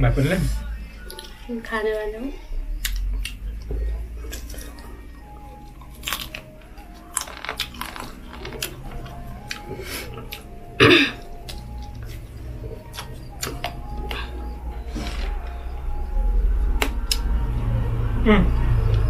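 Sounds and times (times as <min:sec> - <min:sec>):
faint background music: 0:00.0 - 0:19.0
person chewing with crunches: 0:01.0 - 0:01.4, 0:02.8 - 0:15.7.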